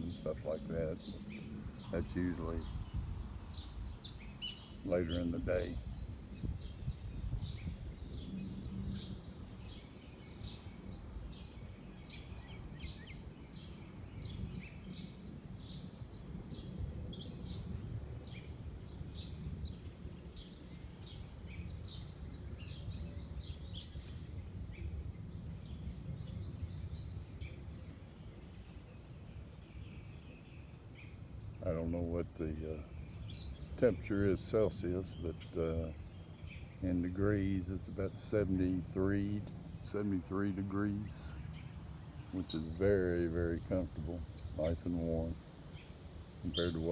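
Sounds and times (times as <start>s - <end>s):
low outdoor rumble: 0.0s - 12.1s, 30.7s - 46.9s
small birds chirping: 0.0s - 46.9s.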